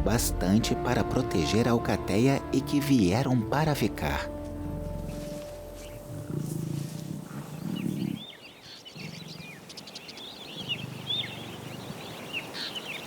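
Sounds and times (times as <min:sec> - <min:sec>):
lions growling: 0:04.0 - 0:09.8, 0:10.5 - 0:12.2
small birds chirping: 0:04.3 - 0:13.0.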